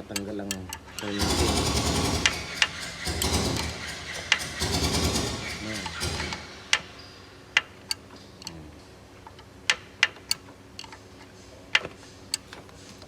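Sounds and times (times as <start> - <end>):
hand tools clicking on metal: 0.0 - 8.6.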